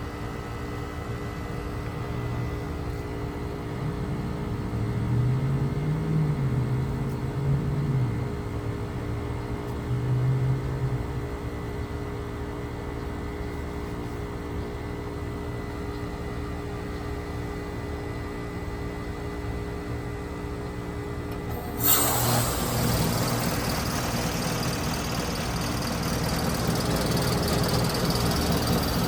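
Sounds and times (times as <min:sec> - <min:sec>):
heat pump mechanical hum: 0:00.0 - 0:29.0
steady whine: 0:21.3 - 0:29.0
low drone: 0:21.5 - 0:28.0.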